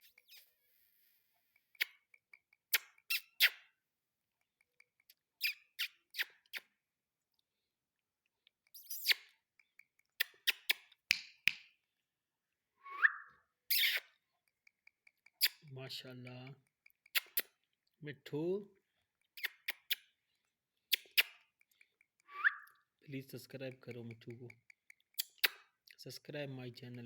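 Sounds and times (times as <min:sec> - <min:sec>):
parrot calls and clicks: 0:00.0 - 0:00.5, 0:01.6 - 0:03.8, 0:04.4 - 0:06.8, 0:08.4 - 0:11.8, 0:13.0 - 0:18.0, 0:18.8 - 0:27.0
parrot rising whistle: 0:12.8 - 0:13.4, 0:22.3 - 0:22.7.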